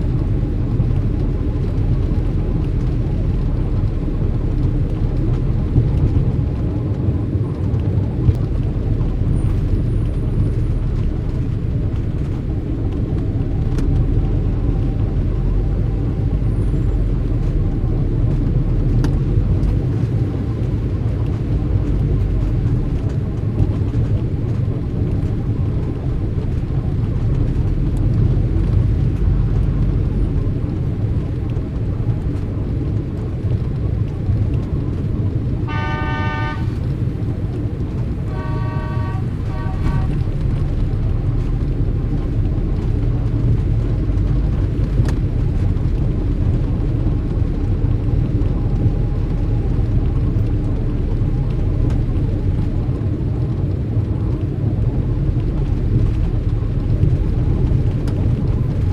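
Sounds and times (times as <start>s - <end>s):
passing cars rumbling: 0.0s - 58.9s
car horn honking: 35.7s - 36.8s, 38.3s - 40.2s.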